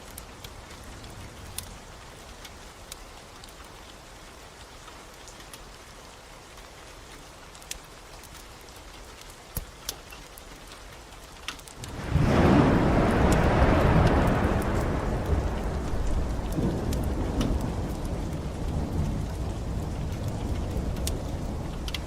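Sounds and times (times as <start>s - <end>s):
steady rain falling: 0.0s - 22.0s
sharp pops and ticks: 7.5s - 12.4s, 13.2s - 22.0s.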